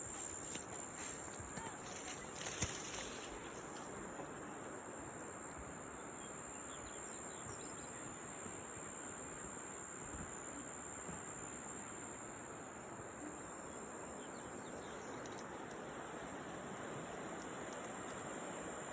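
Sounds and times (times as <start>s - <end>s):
faint bird chirps: 13.4s - 15.6s.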